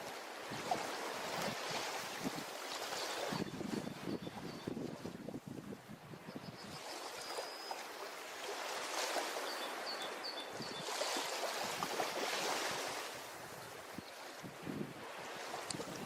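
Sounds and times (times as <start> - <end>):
ocean waves washing onto beach: 0.0 - 3.9, 6.9 - 16.0.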